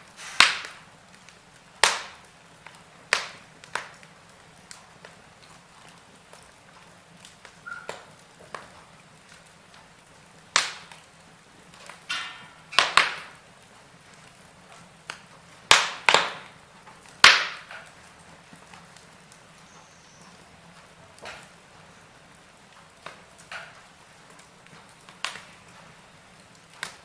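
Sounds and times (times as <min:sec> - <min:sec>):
sharp loud pops of fire: 0:00.0 - 0:01.0, 0:01.8 - 0:04.1, 0:10.5 - 0:11.1, 0:11.7 - 0:13.4, 0:15.1 - 0:16.6, 0:17.2 - 0:18.0
wood fire crackling: 0:00.0 - 0:27.0.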